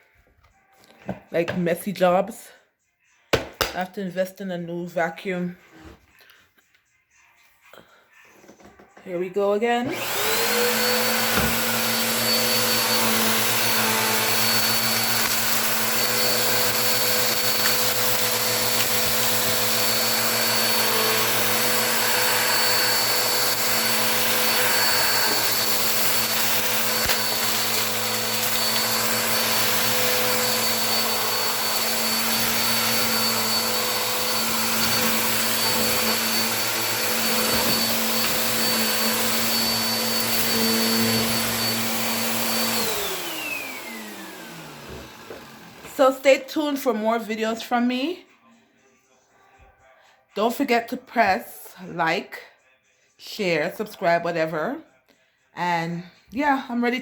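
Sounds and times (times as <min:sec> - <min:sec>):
vacuum cleaner running: 0:09.8 - 0:46.1.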